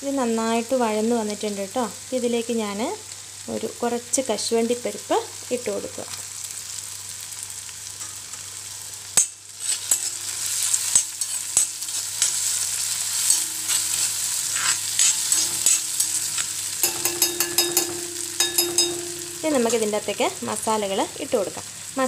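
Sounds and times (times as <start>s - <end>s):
food sizzling in hot oil: 0.0s - 22.0s
spatula clicking and scraping pan: 9.2s - 19.9s.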